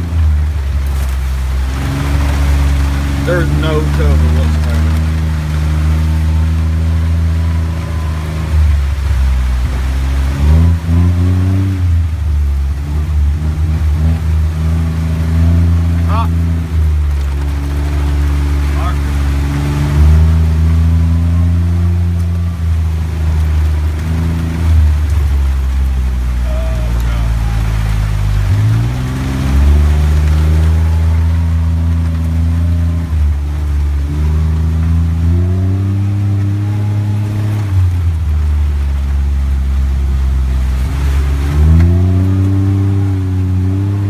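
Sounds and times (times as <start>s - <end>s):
car engine revving: 0.0s - 44.0s.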